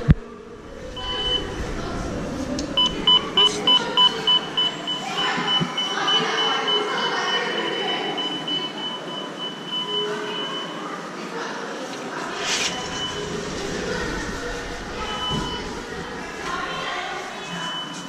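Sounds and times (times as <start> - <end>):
station rumble and hubbub: 0.0 - 7.2, 11.8 - 18.0
electronic warning beeps: 0.9 - 1.7, 2.8 - 10.8, 12.3 - 18.0.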